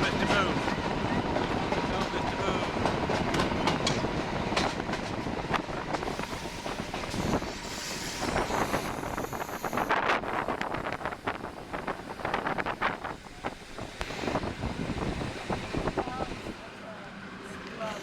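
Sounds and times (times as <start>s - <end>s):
train wheels clattering over rail joints: 0.1s - 9.7s
high hissing squeal: 6.1s - 10.4s.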